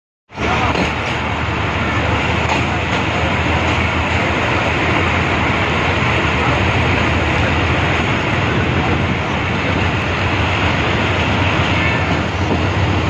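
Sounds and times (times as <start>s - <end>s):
train wheels rumbling on rails: 0.3s - 13.0s.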